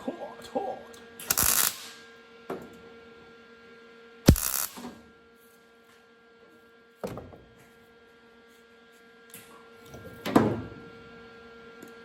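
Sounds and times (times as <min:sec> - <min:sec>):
steady electrical hum: 0:00.0 - 0:02.1, 0:04.3 - 0:05.0.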